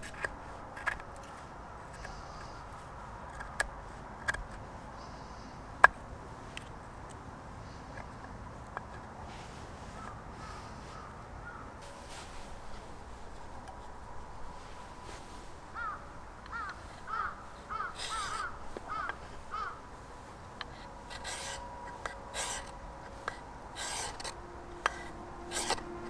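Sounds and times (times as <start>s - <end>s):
bird calling: 1.9s - 2.9s, 5.0s - 6.0s, 7.5s - 26.0s.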